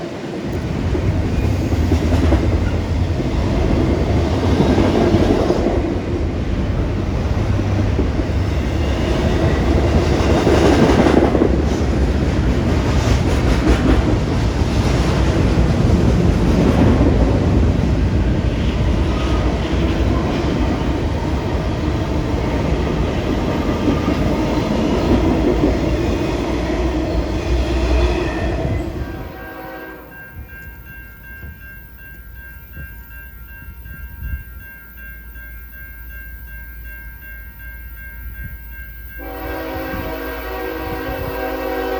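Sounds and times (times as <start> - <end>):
freight train rumbling past: 0.0 - 41.9
steady high tones: 28.0 - 40.4.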